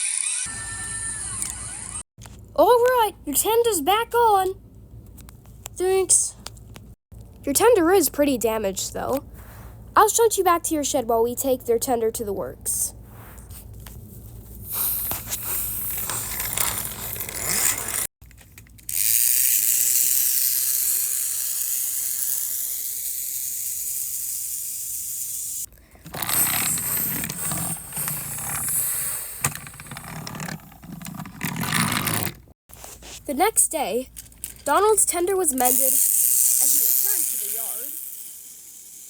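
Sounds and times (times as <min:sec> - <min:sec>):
steady high whirring: 0:00.0 - 0:02.0
toy trains rolling on track: 0:00.0 - 0:02.0, 0:15.7 - 0:32.4, 0:34.2 - 0:39.0.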